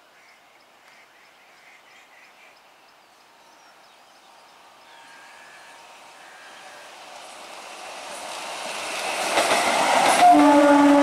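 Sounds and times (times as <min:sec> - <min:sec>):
birds chirping: 0:00.0 - 0:07.0
train running noise and whine: 0:03.3 - 0:11.0.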